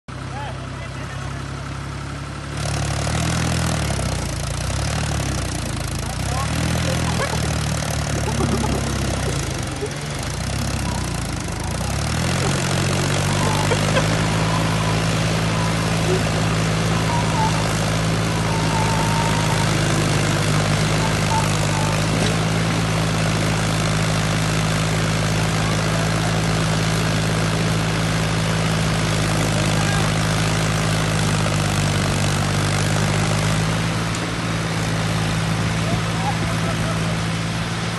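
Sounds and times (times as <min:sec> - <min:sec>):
vehicle engine running: 0:00.1 - 0:37.9.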